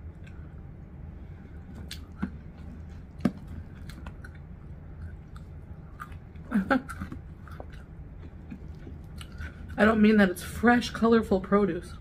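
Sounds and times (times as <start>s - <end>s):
person chewing fried chicken: 1.5s - 9.8s
mouth clicks and crunches: 1.8s - 9.8s.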